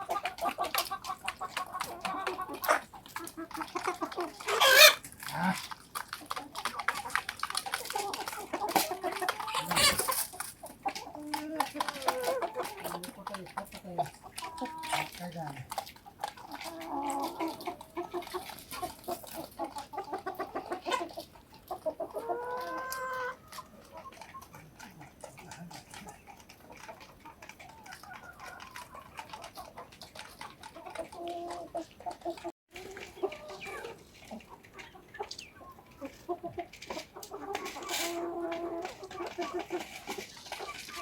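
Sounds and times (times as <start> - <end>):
chickens clucking: 0.0 - 41.0.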